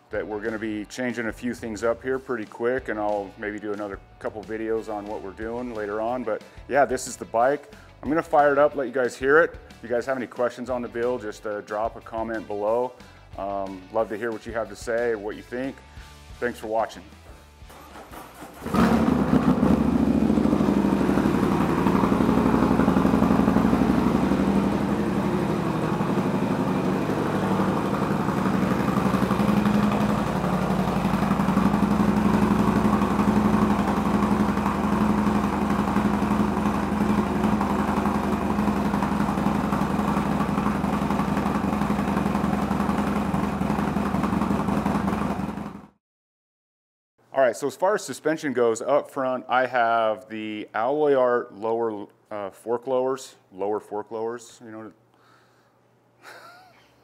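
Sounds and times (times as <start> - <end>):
motorcycle engine running: 17.7 - 46.0.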